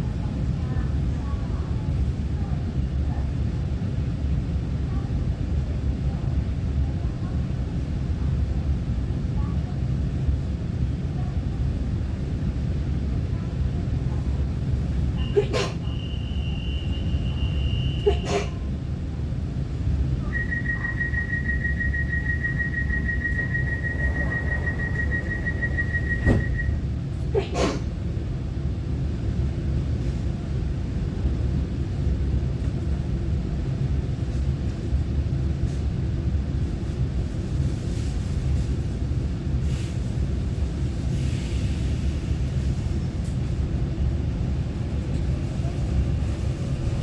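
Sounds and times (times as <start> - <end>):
low rumble of train: 0.0 - 47.0
train door warning beeps: 15.2 - 18.5, 20.1 - 27.0
train doors knocking shut: 24.5 - 26.8.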